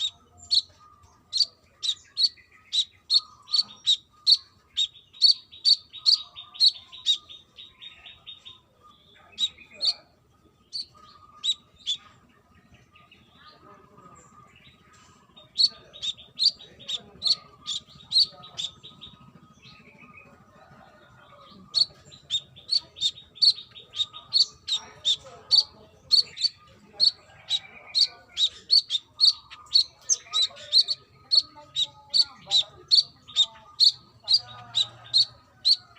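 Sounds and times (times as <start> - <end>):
bird singing high chirps: 0.0 - 20.3, 20.9 - 35.9.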